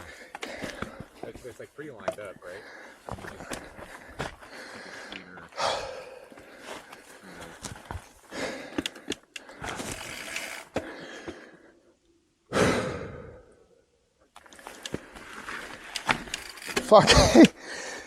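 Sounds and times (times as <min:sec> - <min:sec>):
heavy breathy exhales: 0:12.5 - 0:13.6.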